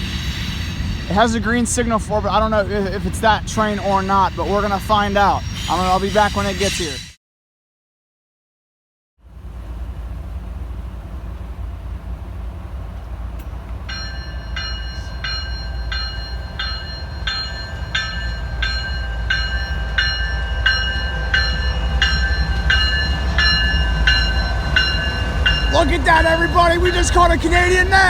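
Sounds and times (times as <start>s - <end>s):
diesel train rumble: 0.0s - 7.2s, 9.2s - 28.0s
level-crossing warning bell: 0.7s - 7.0s, 13.8s - 28.0s.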